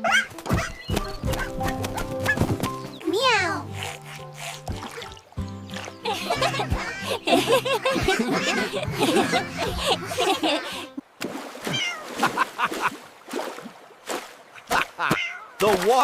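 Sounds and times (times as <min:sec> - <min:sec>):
light background music: 0:00.0 - 0:11.0
cartoon cats meowing: 0:11.7 - 0:12.1, 0:15.1 - 0:15.6.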